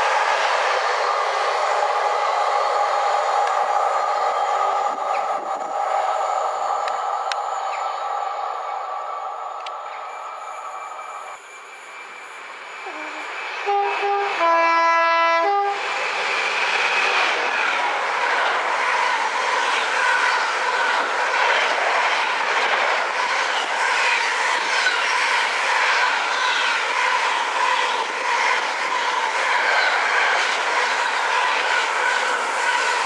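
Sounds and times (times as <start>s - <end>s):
train passing at speed: 0.0s - 33.0s
two-tone train horn: 12.8s - 15.8s.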